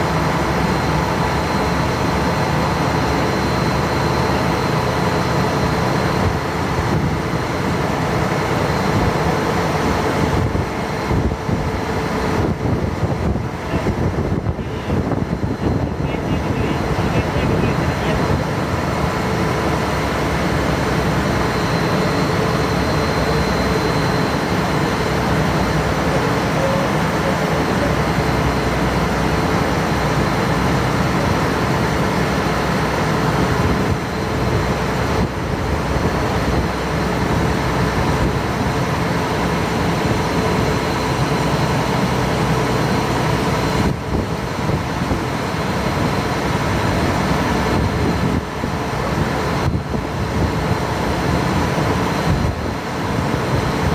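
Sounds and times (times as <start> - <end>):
ferry engine drone: 0.0 - 53.9
water rushing: 13.5 - 48.0.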